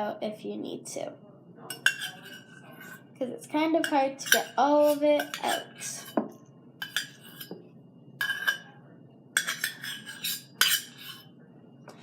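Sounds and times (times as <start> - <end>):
utensil scraping a measuring cup: 1.9 - 3.0, 9.4 - 11.2.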